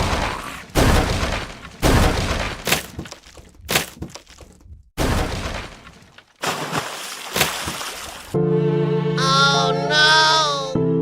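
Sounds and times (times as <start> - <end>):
crashing breaking impacts: 0.0 - 4.2, 5.0 - 6.6.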